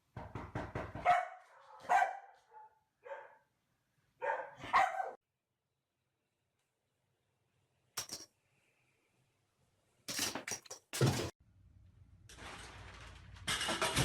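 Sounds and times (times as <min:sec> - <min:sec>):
dog barking: 0:01.0 - 0:03.5, 0:04.2 - 0:05.2.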